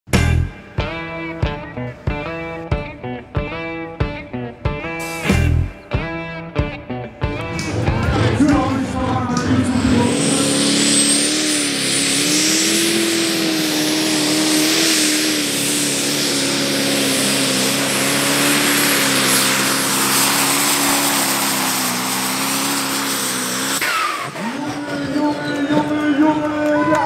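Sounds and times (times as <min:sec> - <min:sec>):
tractor diesel engine running hard: 0:07.2 - 0:27.0.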